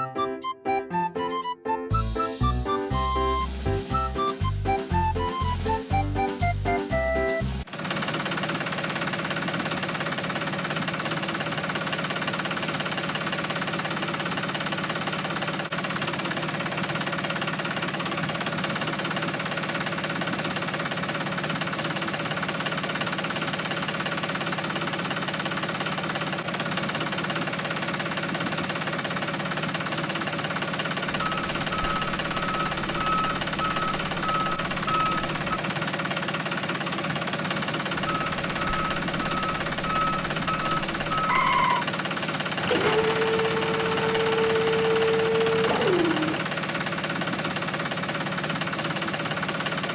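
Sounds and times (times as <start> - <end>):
small motor running: 24.0 - 48.0
short high beeps: 31.1 - 35.6, 38.0 - 41.9.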